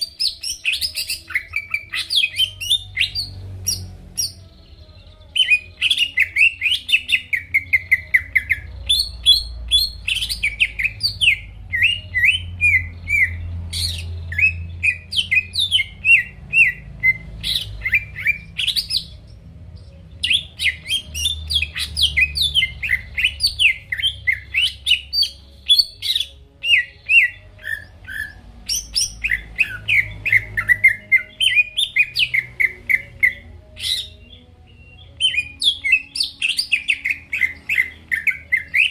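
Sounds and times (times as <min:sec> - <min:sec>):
bird singing chirps and whistles: 0:00.0 - 0:38.9.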